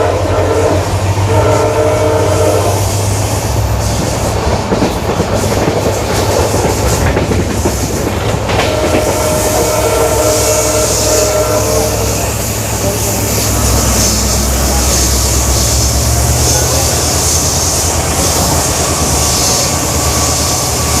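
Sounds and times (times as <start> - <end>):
train horn: 0.0 - 3.0, 8.5 - 17.0
diesel locomotive humming: 0.0 - 21.0
train wheels clattering on rails: 2.8 - 21.0.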